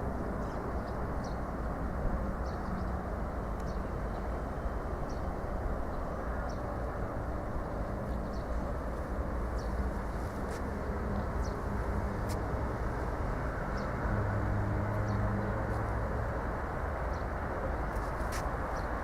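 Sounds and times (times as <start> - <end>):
tyre noise on road: 8.9 - 19.0.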